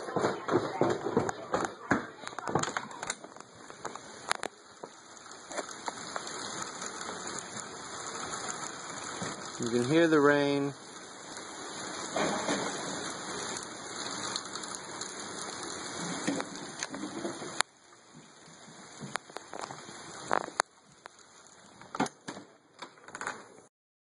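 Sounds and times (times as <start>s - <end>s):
steady rain falling: 0.0s - 23.7s
scattered drips and taps: 8.5s - 22.4s.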